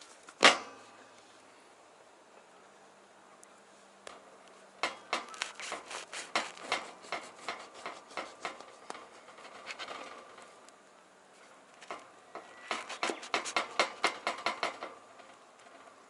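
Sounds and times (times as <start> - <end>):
handling clicks and rustling: 3.4 - 10.8, 11.4 - 16.0.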